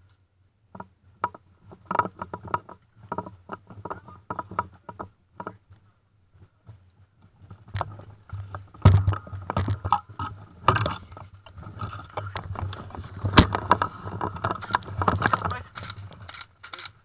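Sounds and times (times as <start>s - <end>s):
handling noise knocks and rustling: 6.4s - 16.8s.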